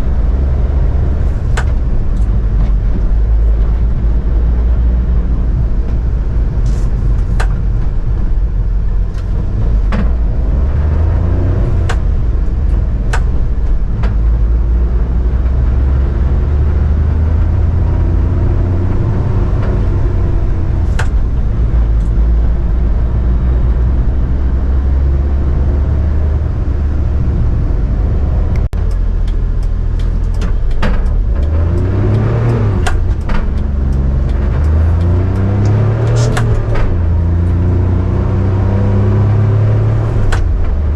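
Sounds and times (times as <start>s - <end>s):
sharp clicks and rattles: 0.0s - 14.6s, 17.8s - 23.0s, 26.5s - 38.5s, 40.0s - 40.9s
truck engine accelerating: 0.0s - 40.9s.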